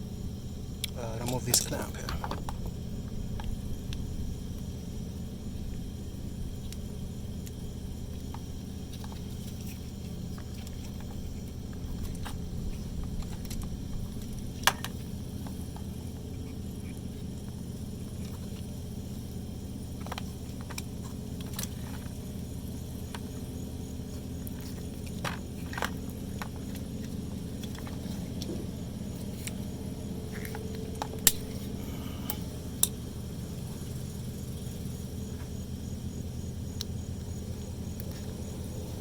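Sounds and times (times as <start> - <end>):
steady low hum: 0.0 - 39.0
pliers clicking on metal parts: 31.0 - 33.0.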